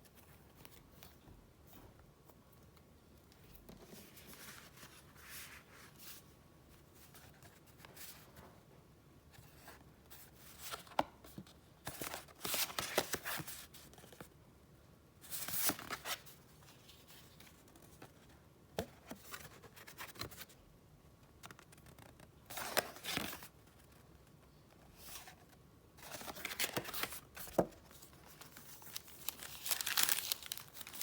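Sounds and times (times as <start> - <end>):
paper rustling and crinkling: 25.0 - 31.0.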